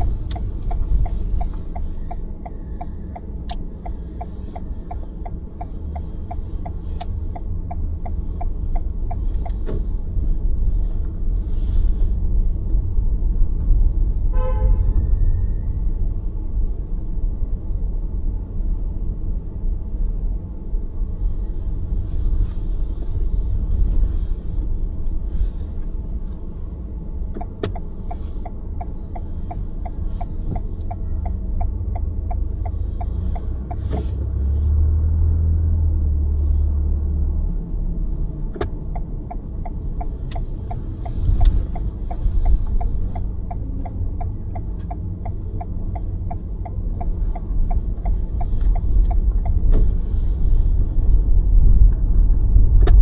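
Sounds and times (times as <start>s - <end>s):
quick even ticking: 0.0s - 10.2s, 27.4s - 34.0s, 38.7s - 49.7s
car road and engine rumble: 0.0s - 53.0s.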